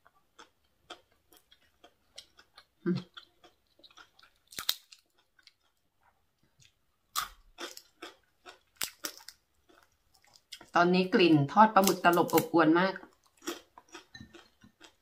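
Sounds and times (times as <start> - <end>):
crisp food crackling: 0.3 - 10.8.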